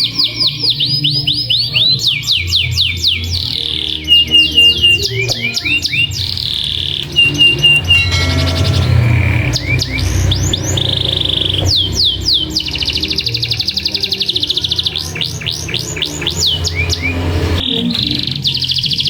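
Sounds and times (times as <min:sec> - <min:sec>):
canary singing: 0:00.0 - 0:19.0
steady low hum: 0:02.4 - 0:17.7.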